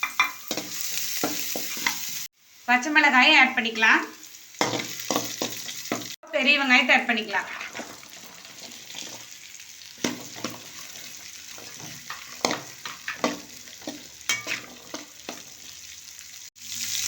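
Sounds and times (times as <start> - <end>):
onions sizzling in hot oil: 0.0 - 17.0
utensil scraping against pan: 7.3 - 9.4, 10.0 - 15.8.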